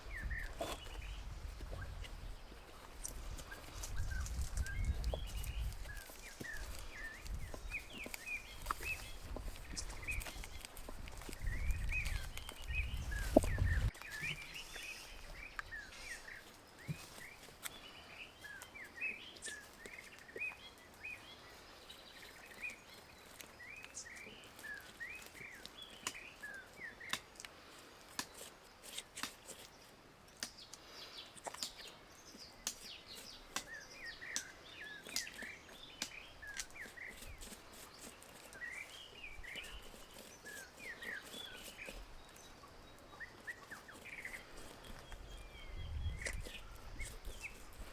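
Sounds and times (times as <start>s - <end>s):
small birds chirping: 0.0s - 47.9s.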